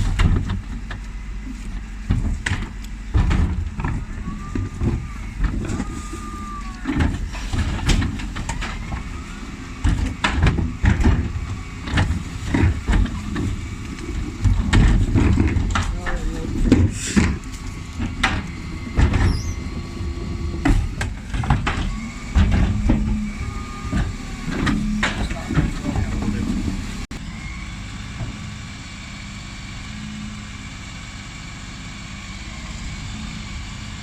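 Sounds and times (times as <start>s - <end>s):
truck engine running: 0.0s - 34.0s
bin lift clanking and banging: 2.1s - 27.1s.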